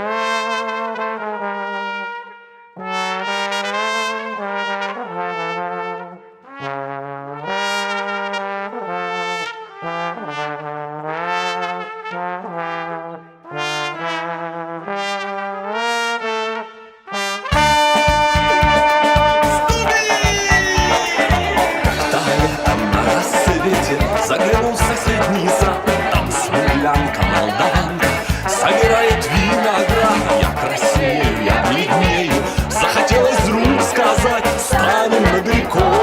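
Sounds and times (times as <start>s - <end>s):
trumpet melody with brass: 0.0s - 36.0s
full-band music with a beat: 17.5s - 36.0s.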